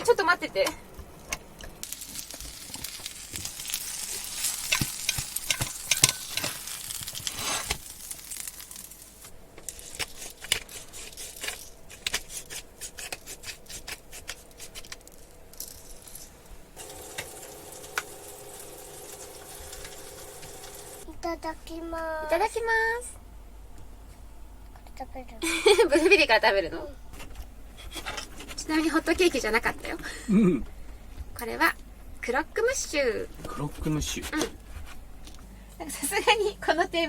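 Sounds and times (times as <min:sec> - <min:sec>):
faint steady hum: 0:00.0 - 0:37.0
food sizzling and crackling: 0:01.0 - 0:21.1.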